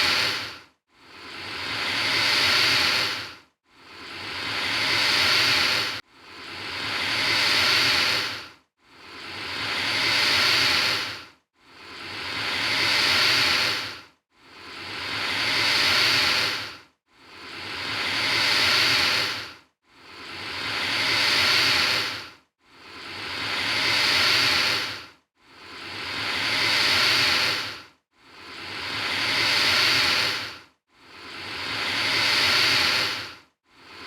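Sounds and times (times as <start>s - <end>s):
alligator hissing: 0.0s - 0.5s, 1.2s - 3.3s, 3.9s - 8.4s, 9.2s - 11.2s, 11.8s - 14.0s, 14.7s - 16.7s, 17.4s - 19.5s, 20.2s - 22.2s, 22.9s - 25.0s, 25.7s - 27.8s, 28.4s - 30.5s, 31.2s - 33.3s.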